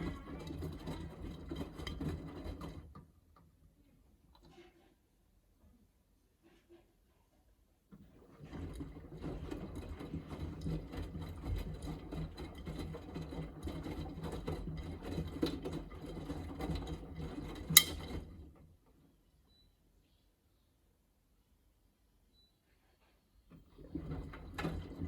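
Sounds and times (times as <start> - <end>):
washing machine drum tumbling: 23.7 - 25.0.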